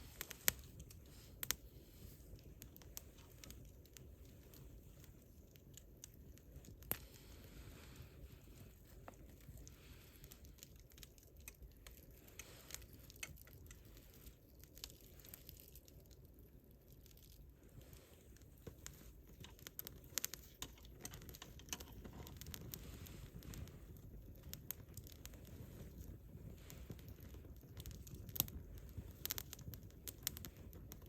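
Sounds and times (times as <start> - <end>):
campfire crackling: 0.0 - 31.0
low steady rumble: 0.0 - 31.0.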